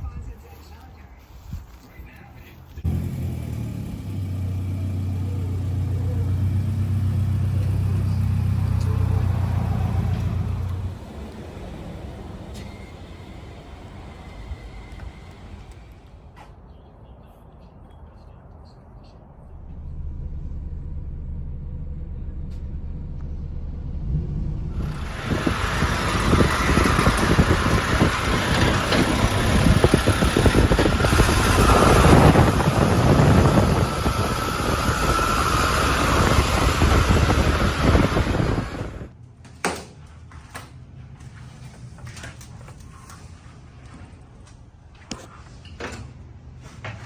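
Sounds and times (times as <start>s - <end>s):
engine and road noise: 0.0s - 47.0s.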